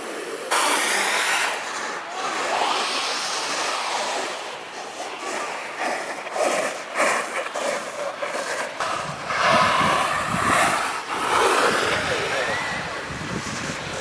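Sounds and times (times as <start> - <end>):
snowboard sliding on snow: 0.0 - 14.0
wind buffeting microphone: 2.0 - 14.0.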